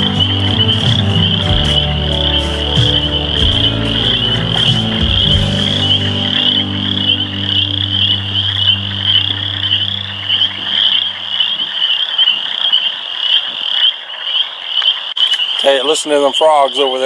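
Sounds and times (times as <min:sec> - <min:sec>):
low steady drone: 0:00.0 - 0:11.8
frogs trilling in chorus: 0:00.0 - 0:17.0.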